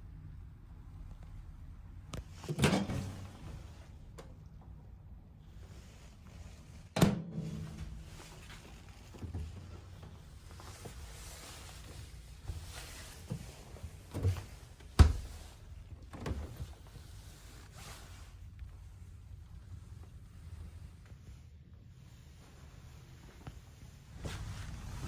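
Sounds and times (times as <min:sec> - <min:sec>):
doors and drawers clunking shut: 0:02.4 - 0:03.5, 0:07.0 - 0:08.1, 0:14.1 - 0:15.5.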